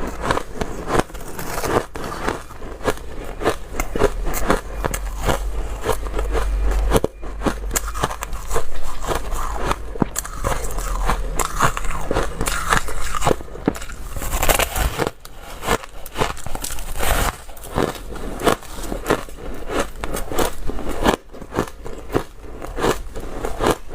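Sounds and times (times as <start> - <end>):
person chewing crunchy ice: 0.0 - 23.9.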